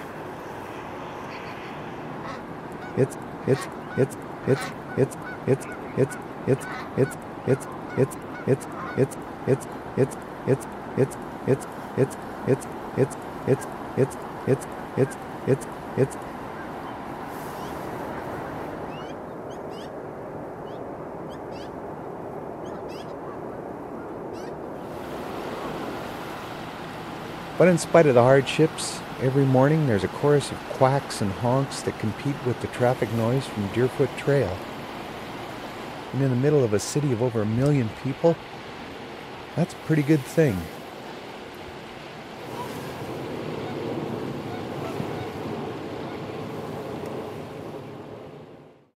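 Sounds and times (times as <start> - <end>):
distant traffic: 0.0 - 17.1
ducks and geese calling: 2.2 - 16.7.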